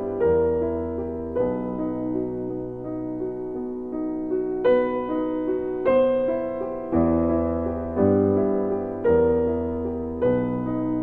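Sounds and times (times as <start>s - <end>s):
slow soft piano music: 0.0s - 11.0s.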